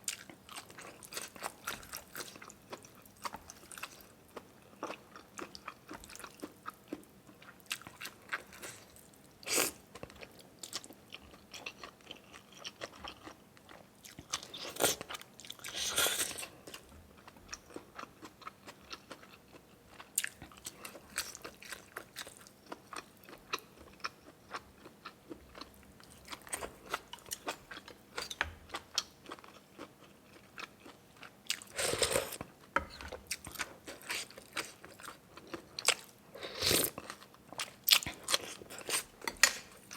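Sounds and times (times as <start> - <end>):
person chewing crunchy food: 0.1 - 39.9.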